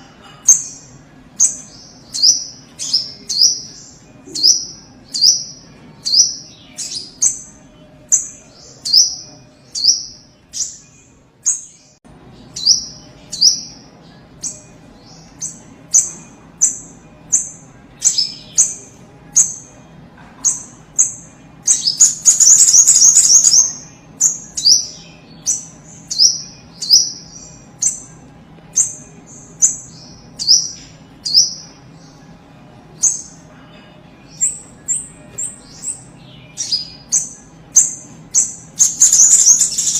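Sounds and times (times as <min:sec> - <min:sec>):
bird chirping: 0:00.5 - 0:33.5, 0:34.2 - 0:39.9
bird trilling: 0:20.5 - 0:28.2, 0:34.3 - 0:39.9.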